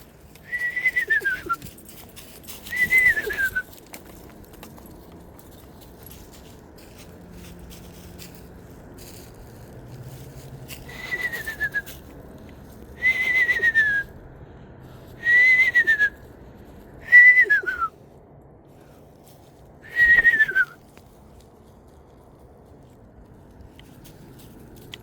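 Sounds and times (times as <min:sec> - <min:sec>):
person whistling owl call: 0:00.4 - 0:01.7, 0:02.7 - 0:03.7, 0:10.9 - 0:11.9, 0:13.0 - 0:14.1, 0:15.2 - 0:16.2, 0:17.0 - 0:18.0, 0:19.8 - 0:20.8.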